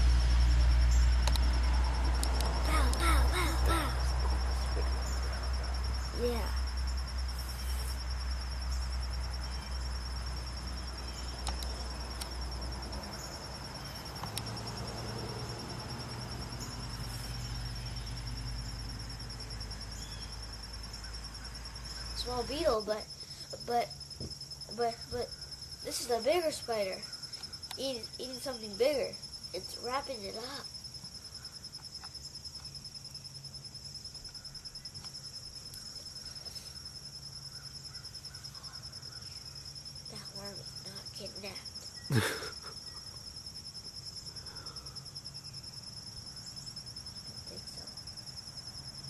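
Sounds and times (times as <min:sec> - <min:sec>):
crickets chirping: 0:00.0 - 0:49.0
insects trilling: 0:00.0 - 0:49.0
faint clicks: 0:01.2 - 0:01.5, 0:11.4 - 0:12.3.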